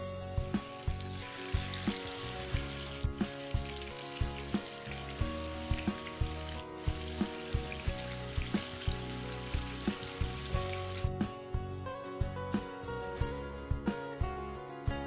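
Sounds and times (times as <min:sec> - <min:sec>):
background music with steady beat: 0:00.0 - 0:15.0
chicken sizzling in hot oil: 0:00.3 - 0:11.2.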